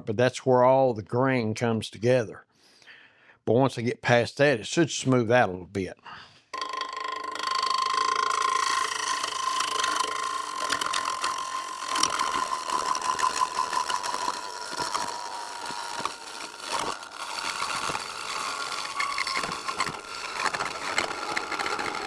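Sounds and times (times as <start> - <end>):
wood lathe whine: 6.6 - 22.0
gouge cutting wood scratchily: 7.4 - 22.0.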